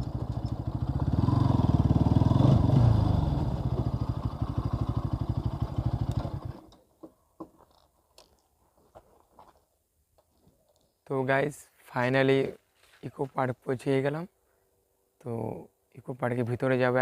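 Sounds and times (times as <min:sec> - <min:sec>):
motorcycle engine idling: 0:00.0 - 0:06.7.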